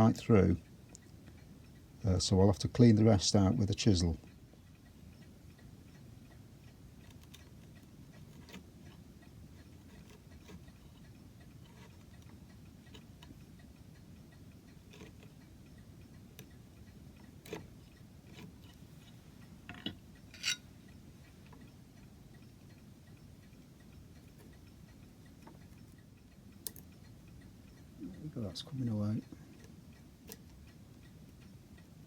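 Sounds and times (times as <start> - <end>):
chisel clicking and scraping wood: 7.1 - 9.0, 9.8 - 10.8, 11.6 - 12.3, 14.9 - 15.4, 17.4 - 19.8.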